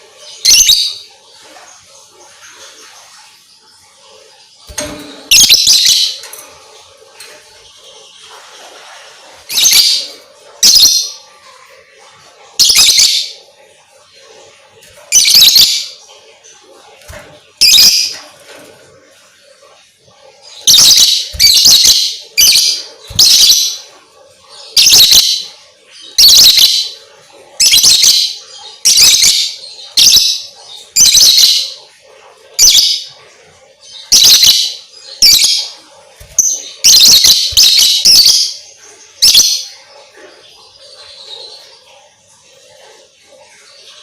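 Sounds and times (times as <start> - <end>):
lovebird shrill chirps: 20.6 - 23.8, 36.3 - 38.6.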